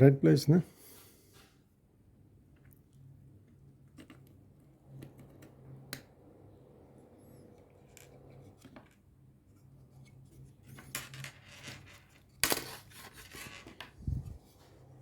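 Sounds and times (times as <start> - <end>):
faint steady hum: 0.1 - 15.0
small parts clattering: 10.6 - 14.0.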